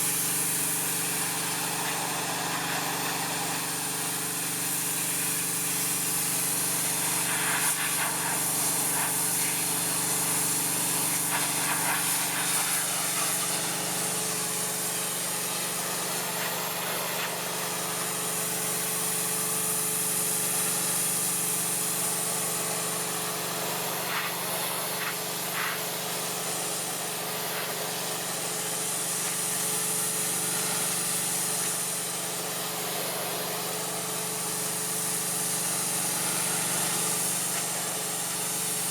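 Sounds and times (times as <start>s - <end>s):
high-pressure spray hissing: 0.0s - 38.9s
pressure washer engine hum: 0.0s - 38.9s.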